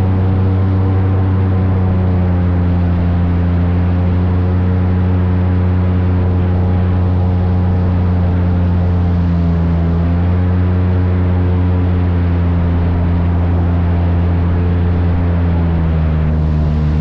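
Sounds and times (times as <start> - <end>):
airboat engine and propeller drone: 0.0 - 17.0.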